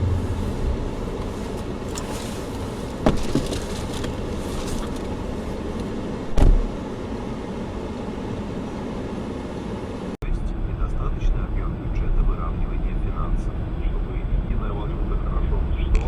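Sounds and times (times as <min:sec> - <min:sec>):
car road and engine noise: 0:00.0 - 0:16.0
heavy low thump: 0:06.3 - 0:06.8.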